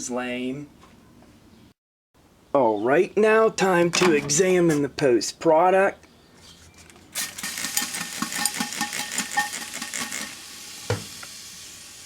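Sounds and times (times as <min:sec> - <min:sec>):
firework crackling and sizzling: 0:07.2 - 0:12.0
steady hiss: 0:07.6 - 0:12.0.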